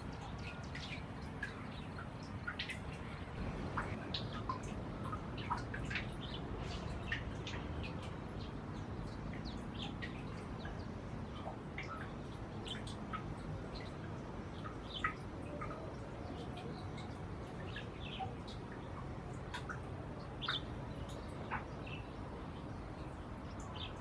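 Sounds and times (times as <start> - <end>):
low background noise: 0.0 - 24.0
birds chirping: 0.2 - 24.0.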